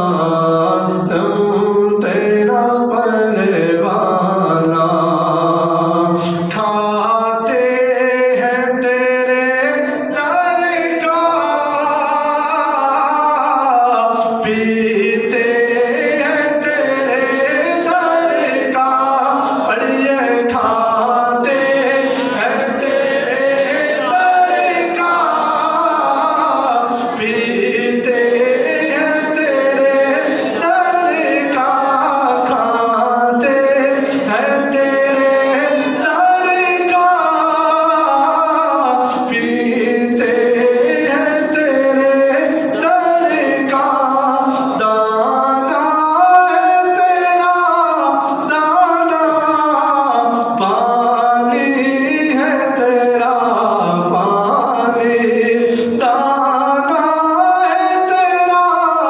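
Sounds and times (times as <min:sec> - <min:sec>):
person singing: 0:00.0 - 0:59.0.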